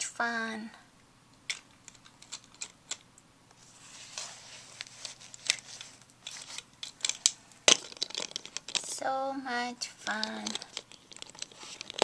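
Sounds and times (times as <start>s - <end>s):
plastic toys clicking and tapping: 1.5s - 3.0s, 6.3s - 9.0s, 10.0s - 12.0s
soft rustle: 3.5s - 12.0s.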